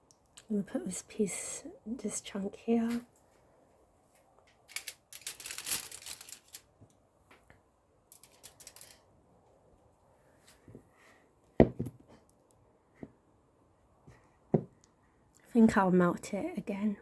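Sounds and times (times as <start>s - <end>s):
wrapper crinkling: 4.7s - 6.7s, 8.1s - 9.0s.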